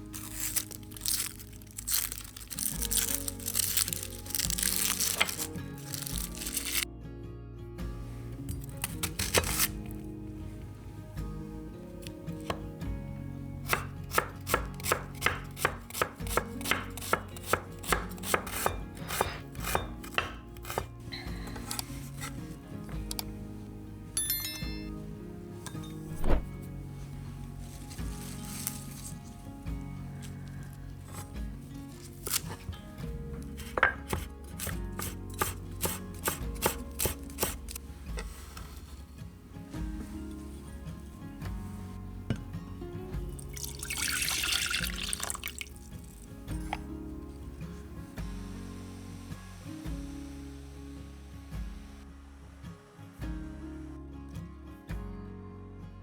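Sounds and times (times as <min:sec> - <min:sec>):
soft background music: 0:00.0 - 0:56.0
knife chopping on cutting board: 0:09.1 - 0:09.7, 0:13.6 - 0:20.9, 0:33.6 - 0:37.8.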